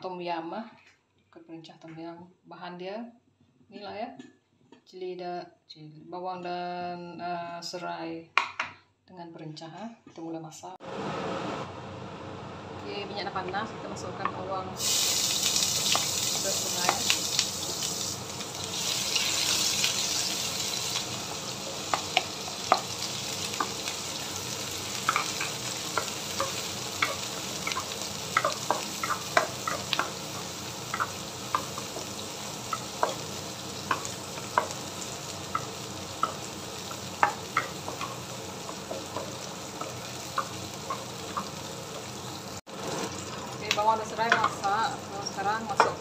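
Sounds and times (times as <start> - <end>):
onion sizzling in hot oil: 10.9 - 46.0.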